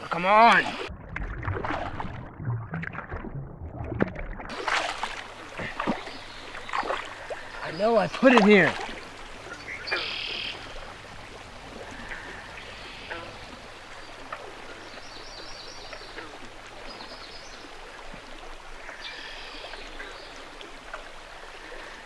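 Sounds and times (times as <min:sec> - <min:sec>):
birds singing trilled phrases: 0:05.9 - 0:10.9.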